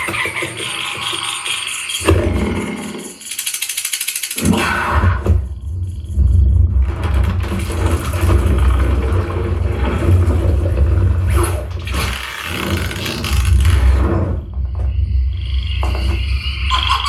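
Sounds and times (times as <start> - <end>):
deep cinematic bass rumble: 5.2 - 12.0.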